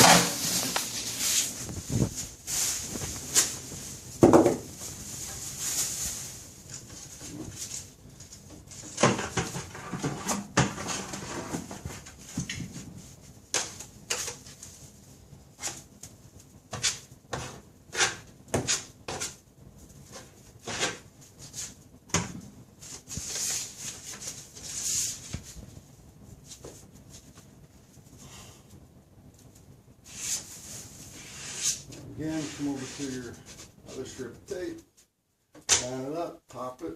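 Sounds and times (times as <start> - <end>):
taping knife scraping drywall: 16.7 - 19.4, 20.1 - 21.0, 31.2 - 31.8.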